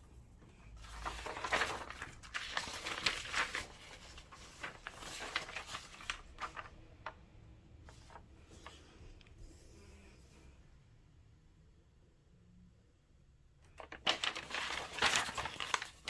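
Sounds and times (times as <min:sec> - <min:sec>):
rustling: 0:00.4 - 0:07.2, 0:13.8 - 0:16.0.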